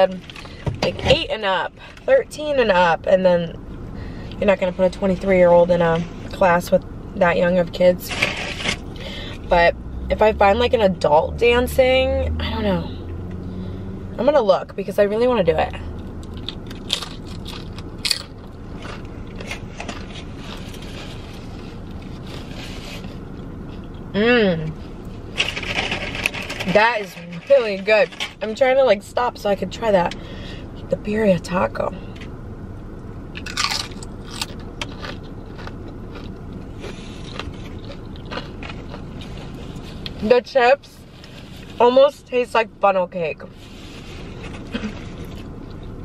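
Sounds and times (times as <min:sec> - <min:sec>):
low car interior rumble: 0:00.0 - 0:46.0
steady low hum: 0:00.0 - 0:46.0
crunching tortilla chip: 0:16.2 - 0:21.2, 0:33.4 - 0:40.1.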